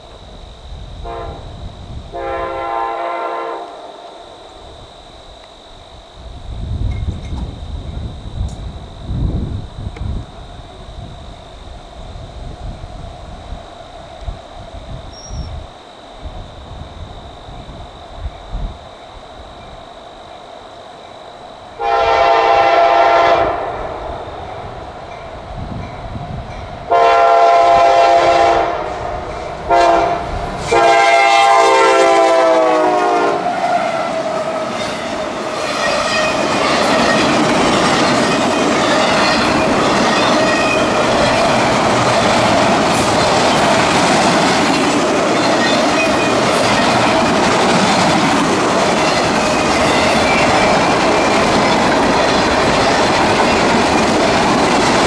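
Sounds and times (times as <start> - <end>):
locomotive air horn blasts: 1.0 - 4.9, 21.8 - 24.0, 26.9 - 29.1, 29.7 - 35.0
train cars clickety-clack: 33.9 - 55.0.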